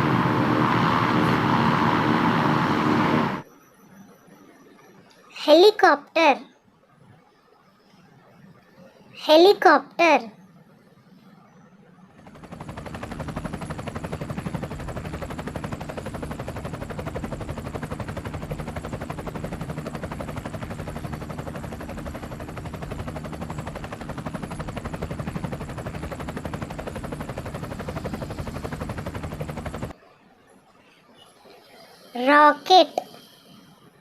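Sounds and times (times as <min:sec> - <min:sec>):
helicopter rotor chopping: 0:00.0 - 0:03.5, 0:11.3 - 0:30.0.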